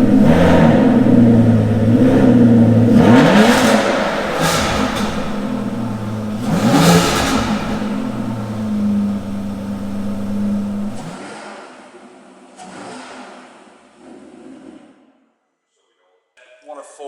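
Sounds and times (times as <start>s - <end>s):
car engine revving and idling: 0.0s - 11.2s.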